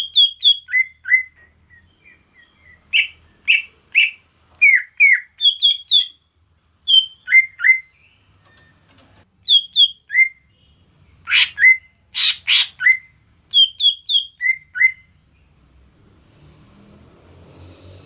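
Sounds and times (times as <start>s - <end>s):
bird singing whistled notes: 0.0s - 6.2s, 6.8s - 8.8s, 9.4s - 15.2s.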